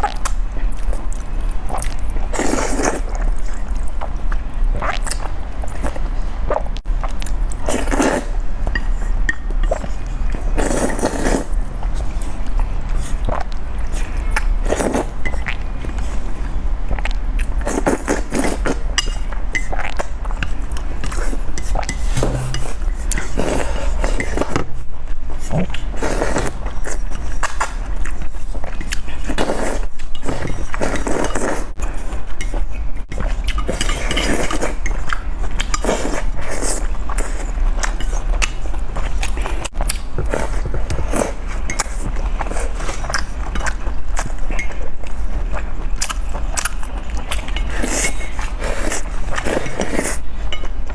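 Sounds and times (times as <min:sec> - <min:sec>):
slurping and chewing noodles: 0:00.0 - 0:50.9
steady low hum: 0:00.0 - 0:50.9
cutlery clinking against bowl: 0:18.4 - 0:24.6, 0:33.2 - 0:36.2.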